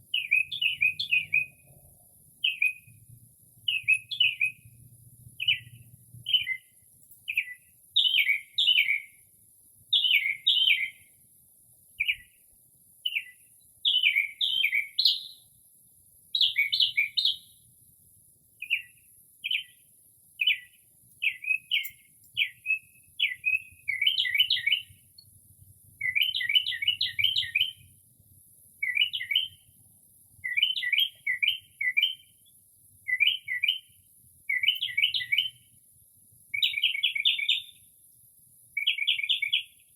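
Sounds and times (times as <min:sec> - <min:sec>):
mockingbird singing: 0:00.0 - 0:09.2, 0:09.9 - 0:11.1, 0:12.0 - 0:12.4, 0:13.0 - 0:15.5, 0:16.3 - 0:17.6, 0:18.6 - 0:19.8, 0:20.4 - 0:25.3, 0:25.9 - 0:27.9, 0:28.8 - 0:29.7, 0:30.4 - 0:35.7, 0:36.5 - 0:37.9, 0:38.8 - 0:39.9.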